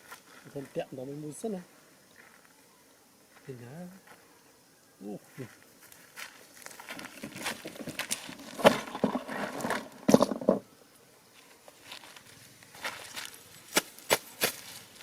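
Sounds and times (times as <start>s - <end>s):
cardboard and wood rustling: 6.7s - 10.7s.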